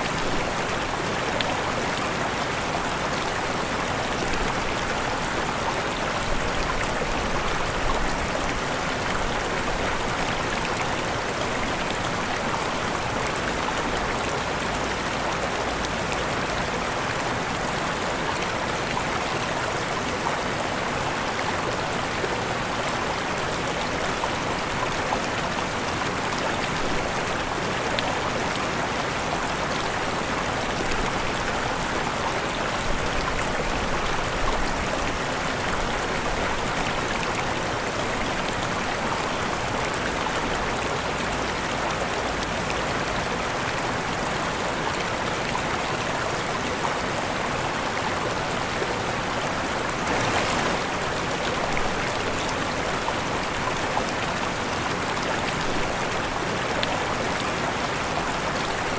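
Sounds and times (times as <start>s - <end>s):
waterfall rushing: 17.0s - 58.9s.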